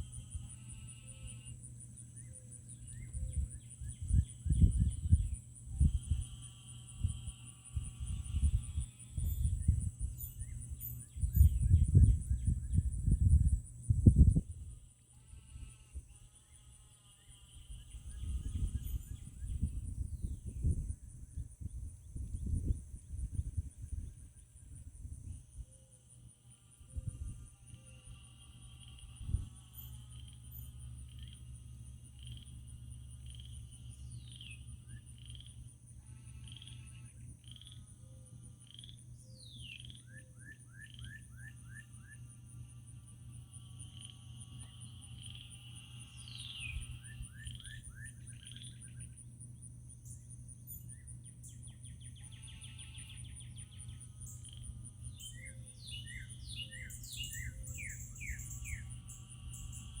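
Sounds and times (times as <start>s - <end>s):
high insect trill: 0.0s - 60.0s
birds chirping: 9.2s - 13.0s, 50.0s - 60.0s.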